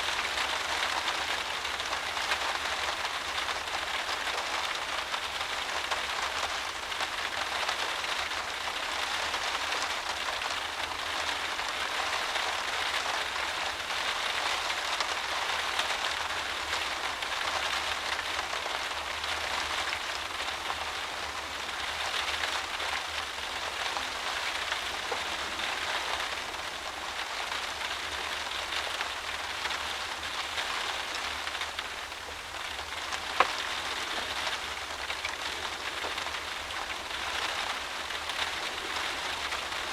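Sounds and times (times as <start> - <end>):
rain beating against a window: 0.0 - 39.9.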